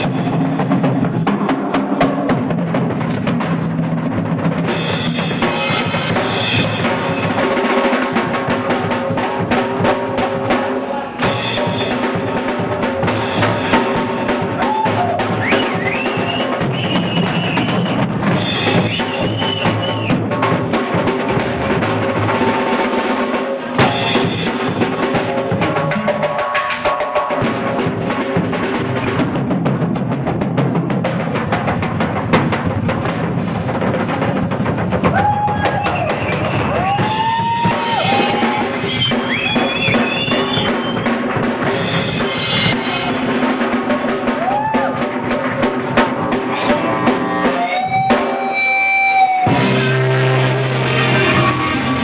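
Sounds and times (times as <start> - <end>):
drum kit beat: 0.0 - 52.0
blues band playing: 35.2 - 52.0
bending lead guitar notes: 46.5 - 52.0.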